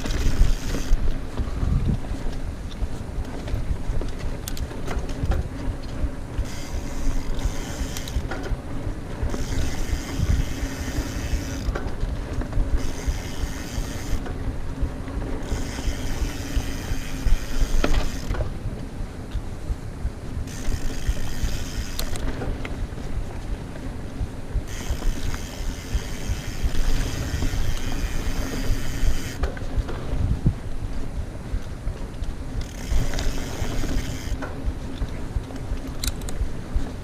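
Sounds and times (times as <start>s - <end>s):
freewheel hub ratcheting: 0.0s - 1.2s, 4.3s - 8.6s, 9.2s - 14.4s, 15.3s - 18.5s, 20.4s - 22.5s, 24.6s - 29.6s, 32.6s - 34.6s
bike rattles and knocks: 0.0s - 37.0s
bike tyre and wind rumble: 0.0s - 37.0s.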